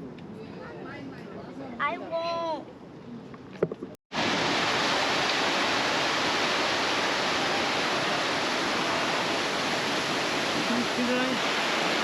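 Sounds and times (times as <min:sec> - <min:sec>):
rushing water of waterfall: 0:04.1 - 0:12.0.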